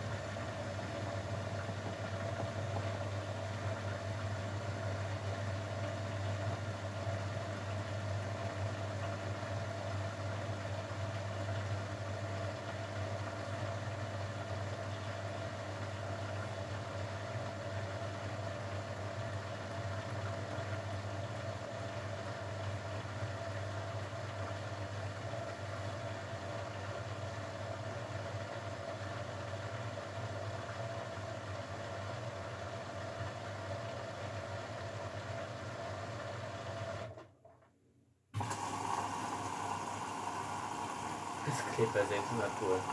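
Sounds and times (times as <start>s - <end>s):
drum whirring: 0.0s - 7.1s, 38.4s - 42.9s
washing machine running: 0.0s - 37.6s, 38.4s - 42.9s.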